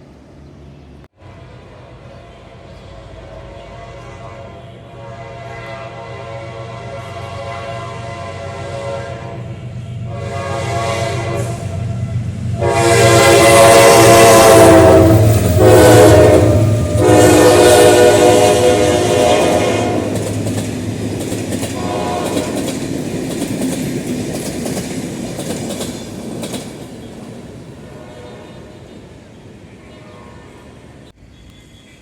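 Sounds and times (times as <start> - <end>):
diesel locomotive engine rumble: 0.0 - 32.0
locomotive horn blasts: 1.2 - 20.2, 21.8 - 22.7, 27.9 - 29.1, 29.8 - 30.9.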